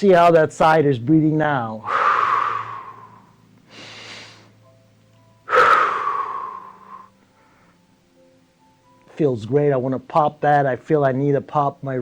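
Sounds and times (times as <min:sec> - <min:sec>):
person breathing deeply: 0:01.8 - 0:04.6, 0:05.5 - 0:07.8.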